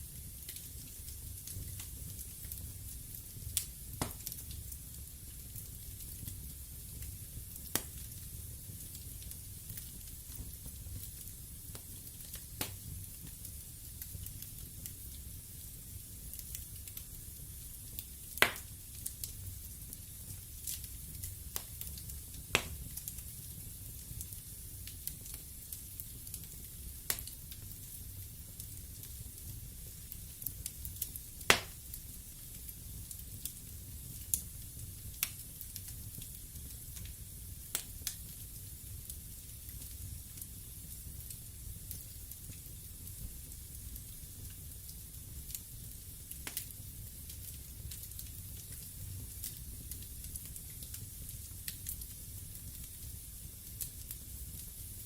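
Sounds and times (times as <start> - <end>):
fire crackles: 0.0 - 55.0
fire rumble and hiss: 0.0 - 55.0
burning logs popping: 0.2 - 54.9
crackling wood pops: 4.0 - 4.4, 7.7 - 8.0, 18.4 - 18.7, 22.5 - 22.8, 31.5 - 31.8.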